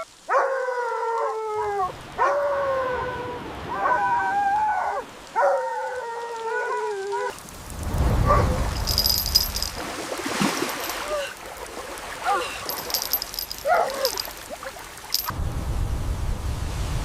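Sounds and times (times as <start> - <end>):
dog howling: 0.3 - 7.3.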